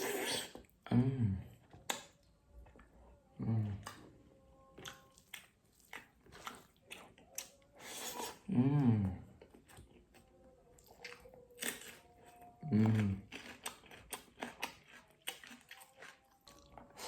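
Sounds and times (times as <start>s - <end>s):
person chewing: 0.0s - 0.9s, 1.5s - 17.0s
person humming: 3.0s - 5.1s, 7.4s - 9.4s, 12.1s - 13.3s.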